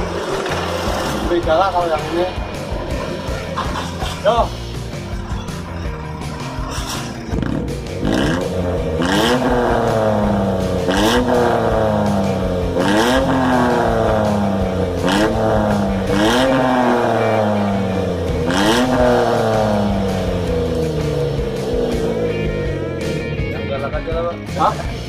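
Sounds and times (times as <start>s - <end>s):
engine revving: 0.0s - 25.0s.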